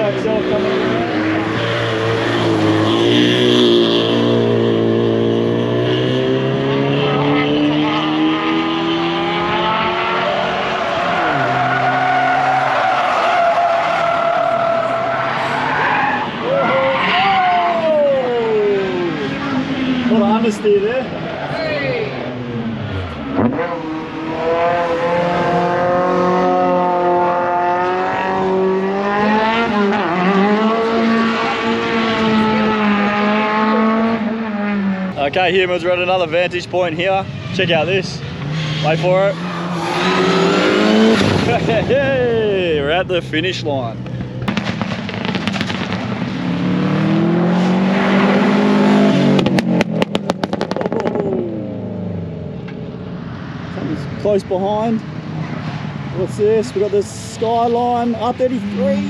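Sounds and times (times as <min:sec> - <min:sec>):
car engine revving hard: 0:00.0 - 0:13.4, 0:22.1 - 0:35.2, 0:37.5 - 0:42.2, 0:44.4 - 0:52.6
exhaust pops and crackles: 0:44.0 - 0:46.4, 0:49.3 - 0:51.3.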